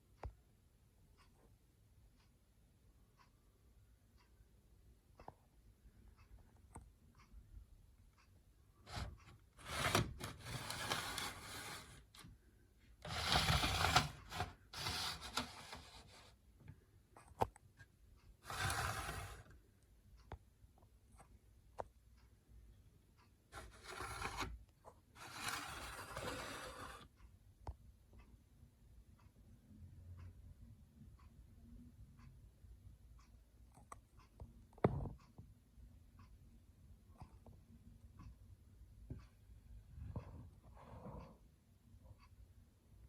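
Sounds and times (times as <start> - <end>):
objects scraping and rubbing: 8.9 - 12.3, 13.0 - 16.4, 18.4 - 19.5, 23.6 - 24.6, 25.2 - 27.0.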